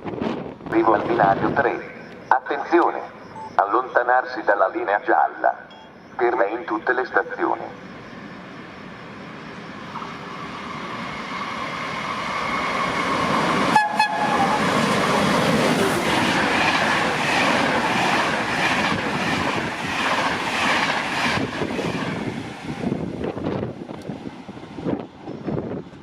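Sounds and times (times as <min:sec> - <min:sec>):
train running into station: 0:00.0 - 0:26.0.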